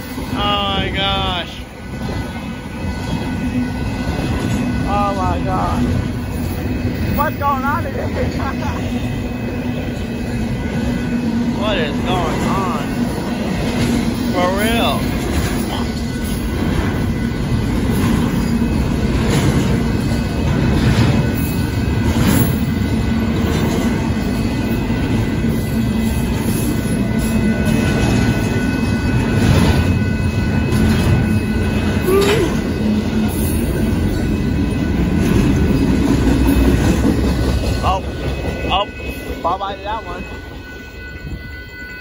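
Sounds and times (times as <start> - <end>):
wheels clacking over rail joints: 0.0 - 41.4
train rolling past: 0.0 - 42.0.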